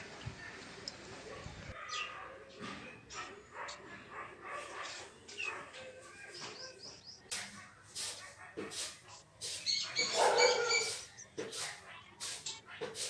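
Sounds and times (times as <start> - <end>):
dog yipping and whimpering: 9.9 - 10.9.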